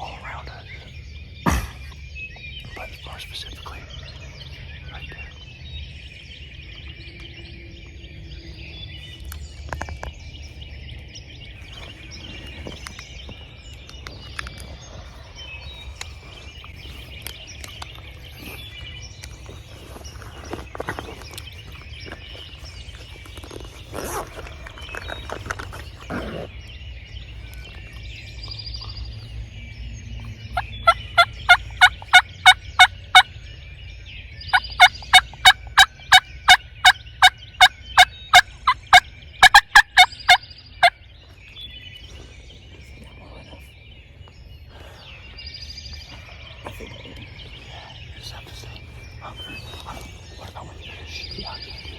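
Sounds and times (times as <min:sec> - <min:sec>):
songbirds chorus: 0:00.0 - 0:51.9
hen turkey yelps: 0:30.6 - 0:33.2, 0:34.8 - 0:40.9
turkeys gobbling: 0:30.6 - 0:33.3, 0:34.5 - 0:41.0.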